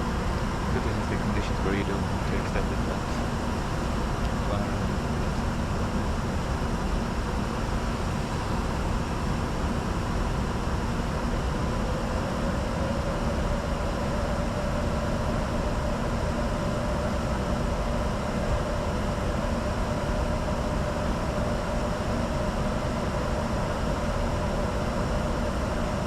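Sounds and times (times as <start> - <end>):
faint hum: 0.0 - 26.0.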